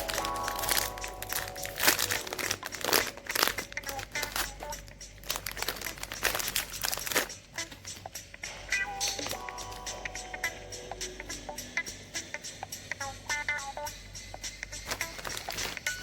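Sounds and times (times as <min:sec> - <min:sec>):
plastic wrapper crinkling: 0:00.0 - 0:08.0, 0:09.1 - 0:09.4, 0:14.8 - 0:16.0.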